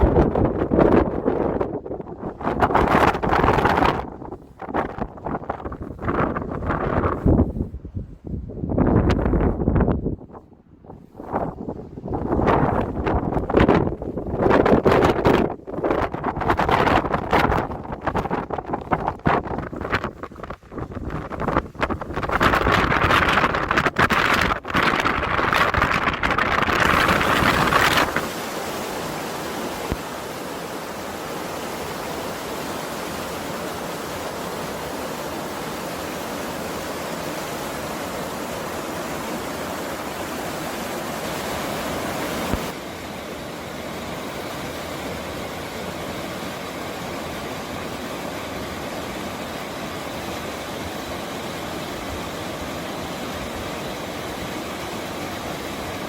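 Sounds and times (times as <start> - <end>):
wind buffeting microphone: 0.0 - 28.5
mountain stream rushing: 16.4 - 56.0.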